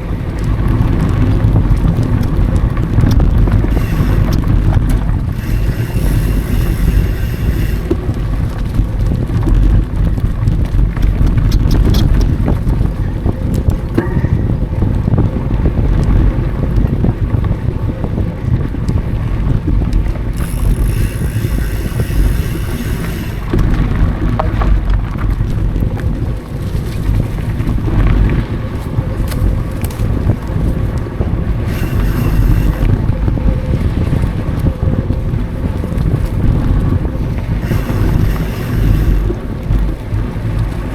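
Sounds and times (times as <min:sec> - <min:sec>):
bike rumbling and rattling: 0:00.0 - 0:40.9
wind rushing over microphone: 0:00.0 - 0:40.9
high buzz: 0:03.5 - 0:08.2, 0:20.3 - 0:24.5, 0:31.6 - 0:33.2, 0:37.6 - 0:40.1.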